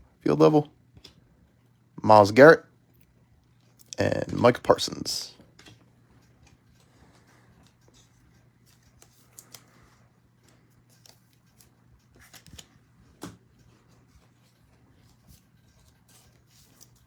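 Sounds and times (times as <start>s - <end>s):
low steady hum: 0.0s - 17.0s
trading cards rustling and clicking: 5.7s - 17.0s.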